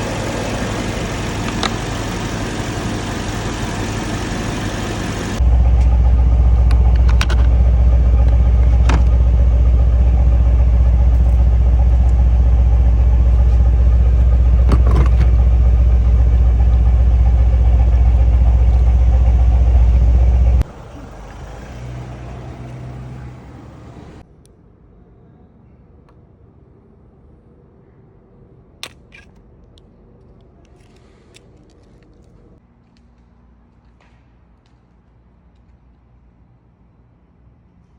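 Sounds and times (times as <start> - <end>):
car engine idling: 0.0 - 24.2.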